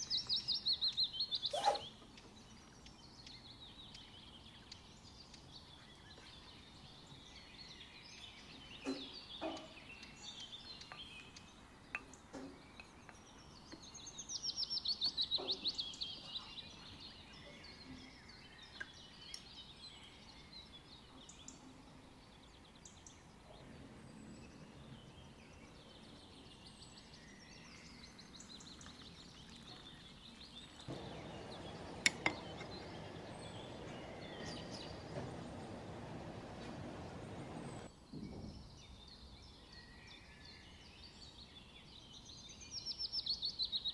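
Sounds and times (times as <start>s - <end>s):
bird trill: 0.0s - 2.0s, 30.9s - 37.9s
birds chirping and singing: 0.0s - 37.9s
steady hiss: 30.9s - 37.9s.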